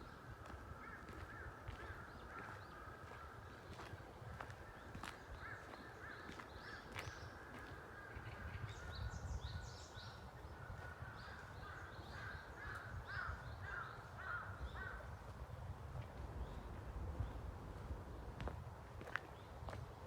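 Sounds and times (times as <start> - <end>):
birds calling: 0.0 - 15.1
wind buffeting microphone: 0.0 - 20.0.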